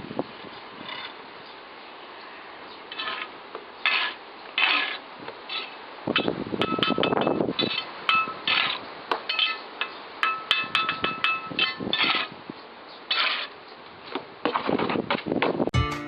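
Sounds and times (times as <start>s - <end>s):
metal scraping rasps: 2.9s - 9.6s, 10.3s - 12.4s, 13.1s - 13.6s.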